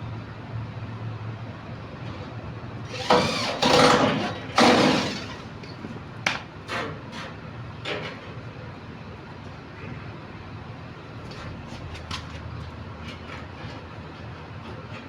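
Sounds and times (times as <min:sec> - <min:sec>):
loud tool strokes: 0:02.9 - 0:05.4.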